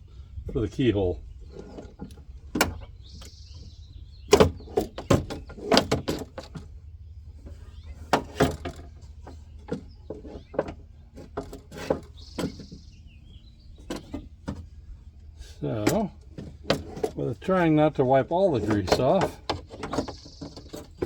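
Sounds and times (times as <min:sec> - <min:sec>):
metal clicks and clanks: 0:15.6 - 0:21.0.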